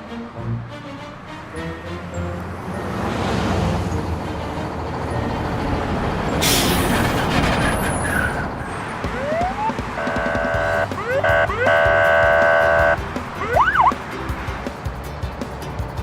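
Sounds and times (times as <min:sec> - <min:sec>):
horn-like chord: 0:00.0 - 0:03.2, 0:10.0 - 0:13.0
truck engine rumbling: 0:00.0 - 0:16.0
rising siren-like whoops: 0:09.1 - 0:12.0, 0:13.4 - 0:13.9.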